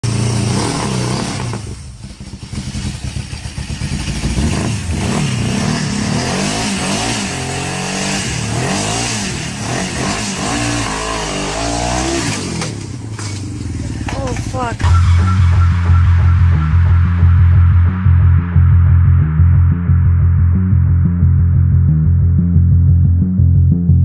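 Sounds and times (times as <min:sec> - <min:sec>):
truck engine revving: 0:00.0 - 0:14.1.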